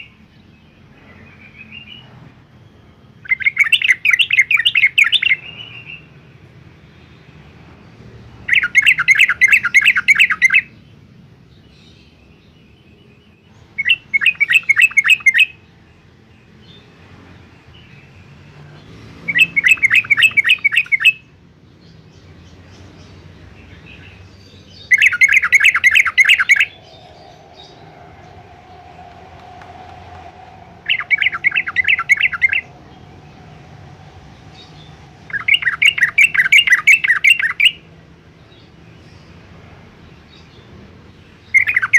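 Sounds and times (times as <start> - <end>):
bulbul singing: 13.8 - 15.6, 19.3 - 37.9.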